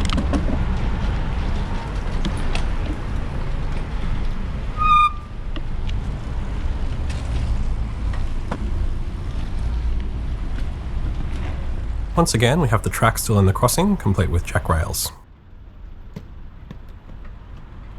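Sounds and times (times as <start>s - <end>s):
street traffic: 1.4s - 9.8s, 12.2s - 15.2s.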